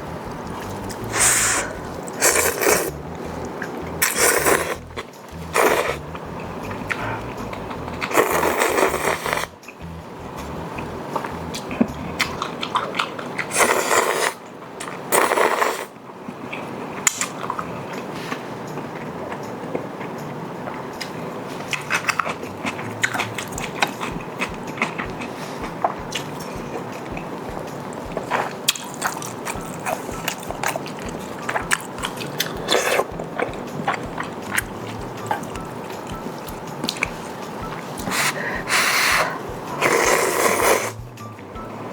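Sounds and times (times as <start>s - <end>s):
noisy burst: 0.0s - 12.5s
chewing: 0.0s - 15.7s, 16.4s - 41.5s
noodle slurps: 0.6s - 3.0s, 4.0s - 4.9s, 5.6s - 6.0s, 7.0s - 9.6s, 13.4s - 14.4s, 15.1s - 15.9s, 28.2s - 37.4s, 38.0s - 41.0s.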